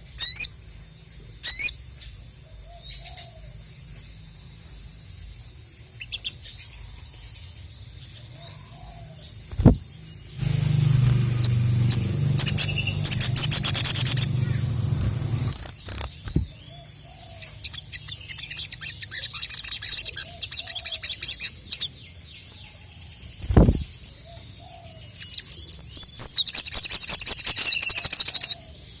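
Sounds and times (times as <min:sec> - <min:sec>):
low hum: 0:09.5 - 0:16.5
low thump: 0:09.6 - 0:09.8
bird high-pitched chirps: 0:10.6 - 0:22.6, 0:23.4 - 0:29.0.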